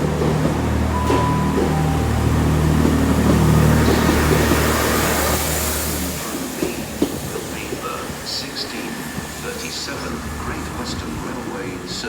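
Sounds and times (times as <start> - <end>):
train diesel engine drone: 0.0 - 12.0.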